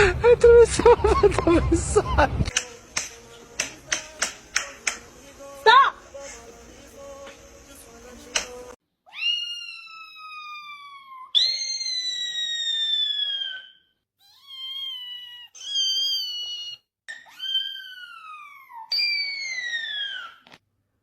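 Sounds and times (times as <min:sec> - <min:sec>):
sharp click: 0:02.4 - 0:05.1, 0:08.3 - 0:08.6
cat meowing: 0:09.1 - 0:12.4, 0:14.2 - 0:18.9.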